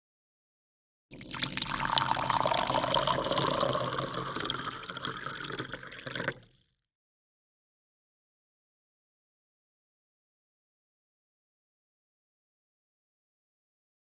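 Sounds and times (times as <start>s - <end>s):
pouring water-like rush: 1.1s - 6.5s.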